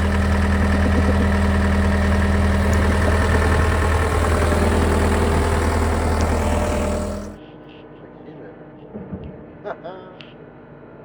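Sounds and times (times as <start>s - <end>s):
diesel engine running steadily: 0.0s - 7.4s.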